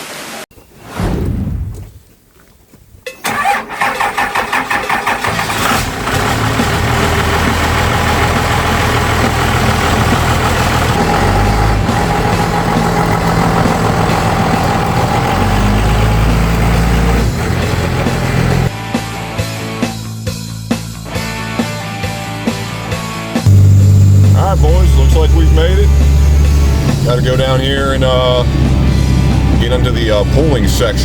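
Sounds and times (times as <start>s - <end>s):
diesel truck engine starting: 3.2s - 18.7s, 23.5s - 31.0s.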